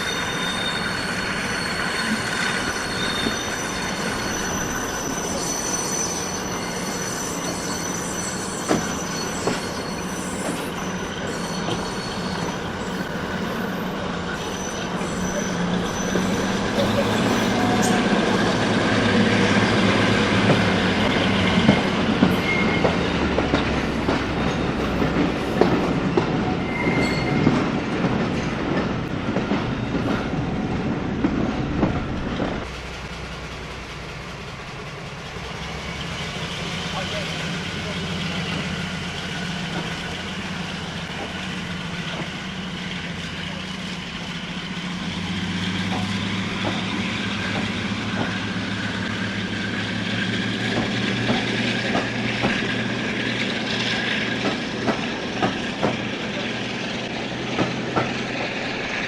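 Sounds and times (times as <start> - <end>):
wheel squeal: 0.0 - 19.8, 22.2 - 28.6
train running on rails: 0.0 - 59.0
rail joints clicking: 11.6 - 59.0.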